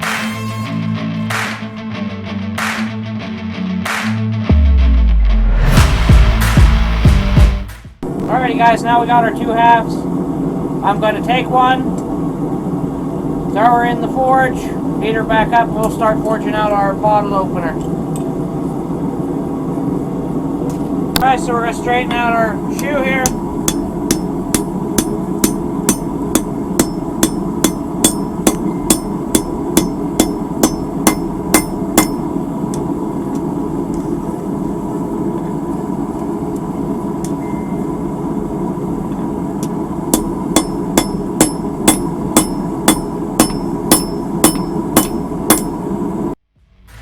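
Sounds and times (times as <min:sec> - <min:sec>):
steady hum: 0:05.6 - 0:47.0
hammer striking metal on anvil: 0:22.8 - 0:32.3, 0:40.1 - 0:45.8.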